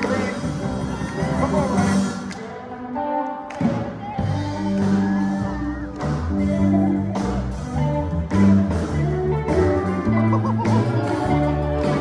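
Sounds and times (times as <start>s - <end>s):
gospel band playing: 0.0s - 12.0s
steel guitar gliding notes: 4.0s - 12.0s.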